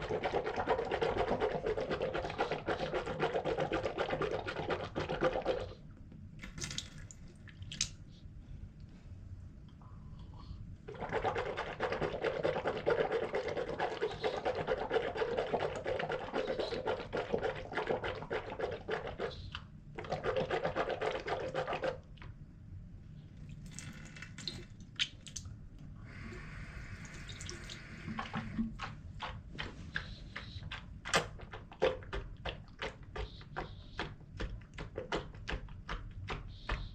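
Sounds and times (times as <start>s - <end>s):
person gargling water: 0.0s - 5.8s, 10.9s - 19.4s, 26.1s - 29.0s
wet clicks and splashes: 6.4s - 8.0s, 23.4s - 25.8s, 27.1s - 36.9s.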